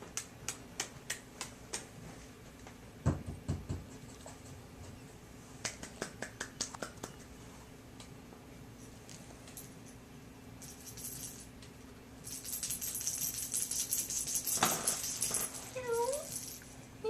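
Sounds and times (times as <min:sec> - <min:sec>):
small bell jingling: 0:10.6 - 0:11.5, 0:12.2 - 0:16.8.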